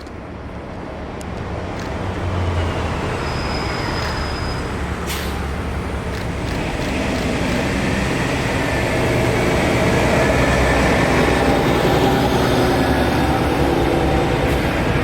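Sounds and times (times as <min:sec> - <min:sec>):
bus engine rumbling: 0:00.0 - 0:15.0
sharp click: 0:06.1 - 0:07.7.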